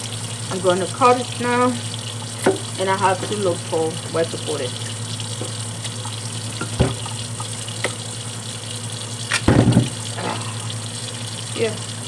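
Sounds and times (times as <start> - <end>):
tap running into a sink: 0.0 - 8.3, 9.0 - 10.8
knocks in a sink: 6.5 - 7.1, 9.4 - 10.4.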